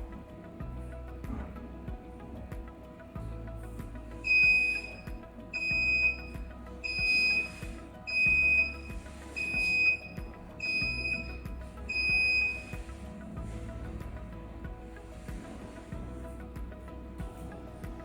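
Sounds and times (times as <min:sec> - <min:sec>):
electronic buzzer beeping: 0:04.3 - 0:05.0, 0:05.6 - 0:12.7.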